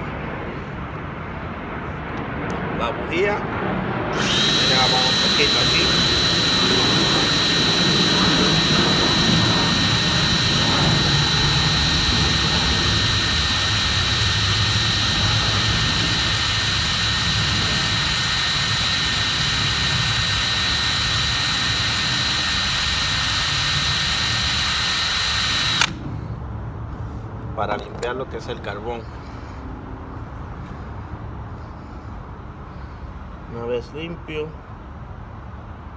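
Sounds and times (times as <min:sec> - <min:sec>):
electric drill with wire brush whining: 0:04.1 - 0:26.0.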